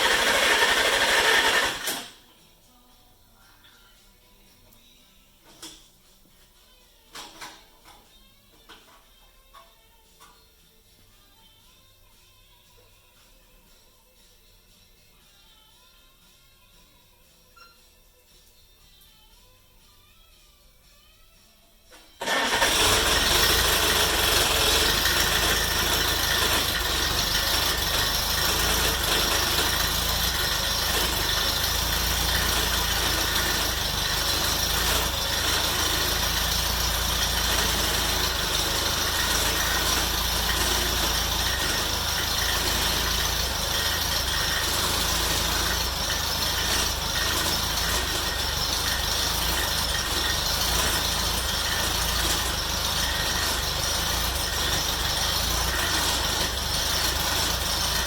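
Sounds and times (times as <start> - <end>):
engine running: 0.0 - 2.1, 22.2 - 58.0.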